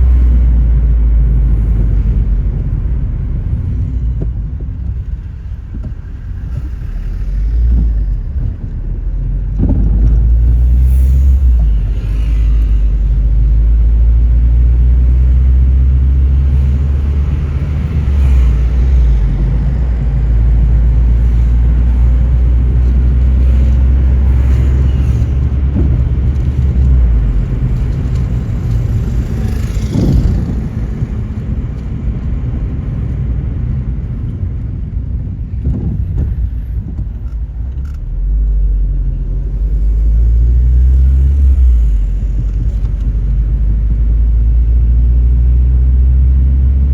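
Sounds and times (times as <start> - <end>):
whoosh of passing air: 0.0 - 37.3
car engine and road noise: 0.0 - 46.9.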